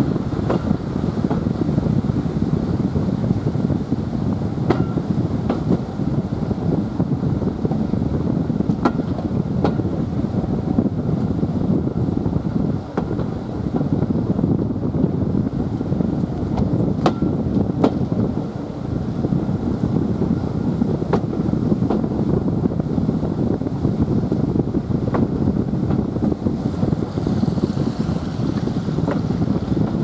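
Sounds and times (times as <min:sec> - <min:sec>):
train running rumble: 0:00.0 - 0:30.0.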